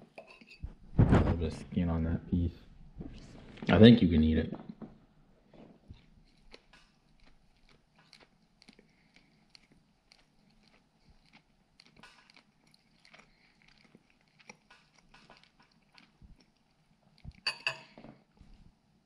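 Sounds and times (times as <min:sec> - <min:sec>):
faint chewing: 0:04.5 - 0:19.0.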